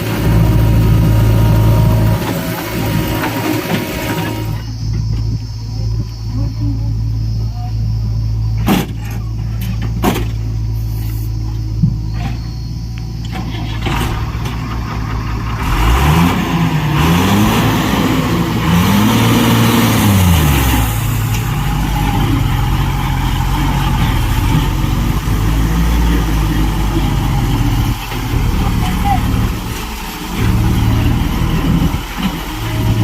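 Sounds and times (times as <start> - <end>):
heavy diesel engine revving: 0.0 - 5.0, 12.8 - 33.0.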